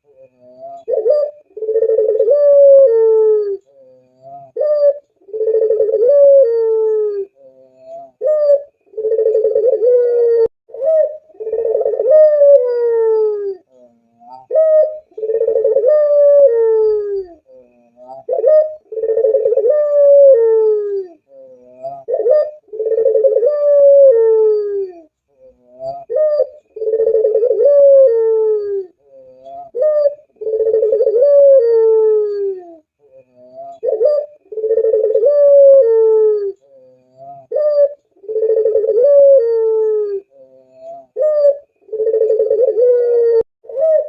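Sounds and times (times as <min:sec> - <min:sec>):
dove cooing: 0:00.0 - 0:44.0.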